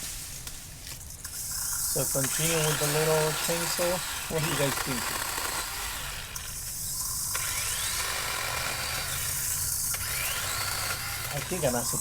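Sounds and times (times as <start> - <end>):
electric chainsaw cutting branches: 0.0 - 12.0.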